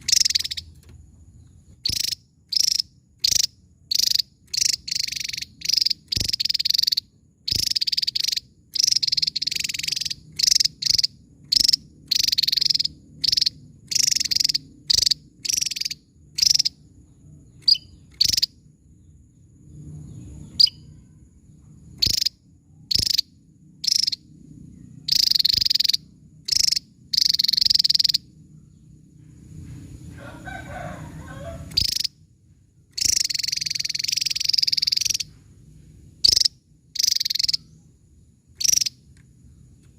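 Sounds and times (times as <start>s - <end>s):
bird singing high sharp bursts: 0.0s - 0.7s, 1.8s - 16.8s, 17.6s - 18.6s, 22.0s - 24.3s, 25.0s - 28.4s, 31.6s - 32.2s, 33.0s - 35.4s, 36.2s - 37.9s.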